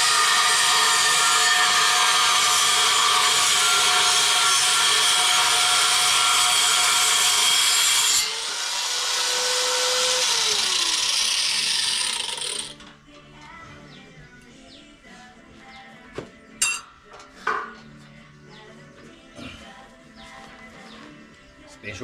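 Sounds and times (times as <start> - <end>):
power tool cutting: 0.0 - 12.8.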